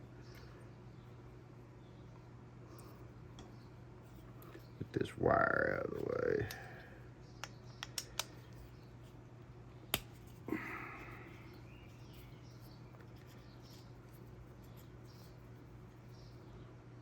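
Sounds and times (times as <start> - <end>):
steady low hum: 0.0 - 17.0
small parts clicking: 7.4 - 8.6.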